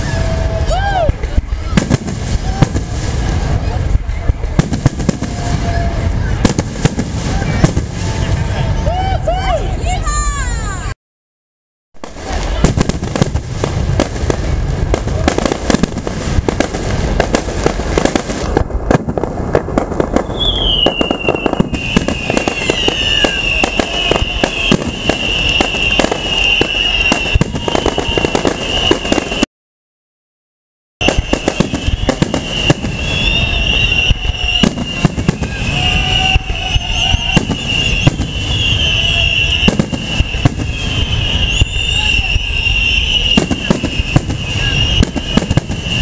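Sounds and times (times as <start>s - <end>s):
fireworks bangs and crackles: 0.0s - 10.9s, 12.0s - 29.5s, 31.0s - 46.0s.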